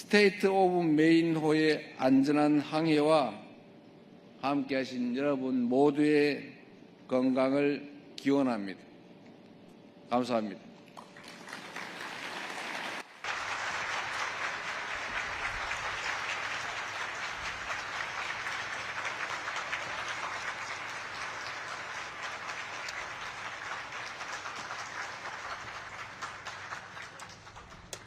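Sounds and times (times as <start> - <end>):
audience applauding: 11.0 - 28.0.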